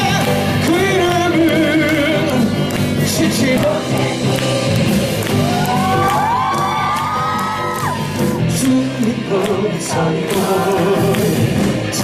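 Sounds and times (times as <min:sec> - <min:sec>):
band accompaniment: 0:00.0 - 0:12.0
audience whooping: 0:04.0 - 0:08.4.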